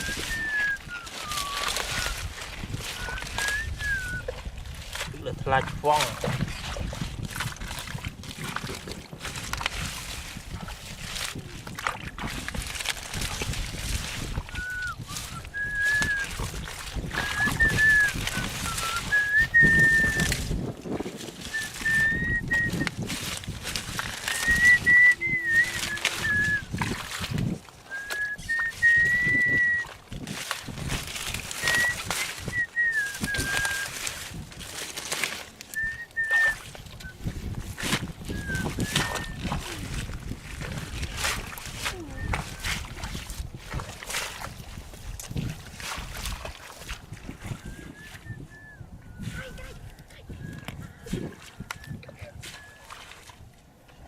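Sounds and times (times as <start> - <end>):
person whistling: 0.0 - 2.3, 2.9 - 4.3, 14.5 - 16.4, 17.2 - 20.4, 21.5 - 23.0, 24.2 - 26.8, 27.9 - 30.0, 31.6 - 34.0, 35.7 - 37.4, 38.3 - 40.0, 41.9 - 42.8, 47.5 - 50.7, 51.7 - 53.0.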